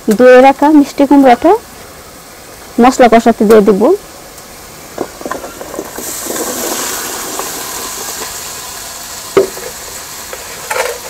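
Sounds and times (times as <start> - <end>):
pumpkin sizzling in hot pan: 3.7 - 11.0
knock against pan: 9.4 - 9.8.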